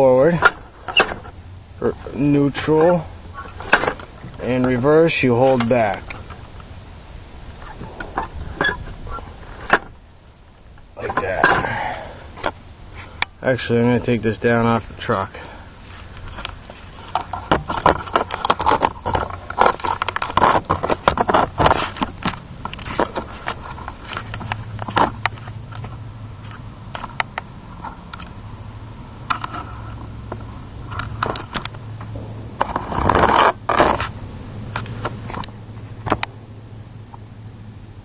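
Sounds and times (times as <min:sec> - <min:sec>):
low steady hum: 0:00.0 - 0:38.0
metal frame clanking and scraping: 0:30.9 - 0:34.2.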